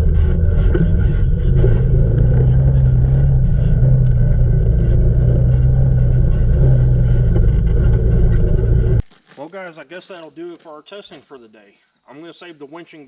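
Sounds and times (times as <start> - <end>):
atv engine running: 0.0 - 9.1.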